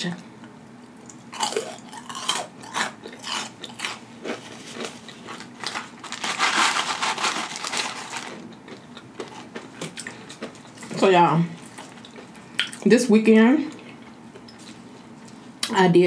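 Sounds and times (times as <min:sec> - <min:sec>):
chewing crispy onion ring: 0:01.1 - 0:10.9, 0:11.6 - 0:12.9
paper carton rustling: 0:05.6 - 0:08.4.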